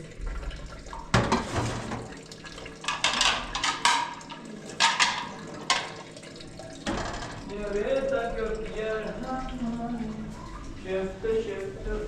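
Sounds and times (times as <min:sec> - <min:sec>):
water splashing and pouring: 0:00.0 - 0:12.0.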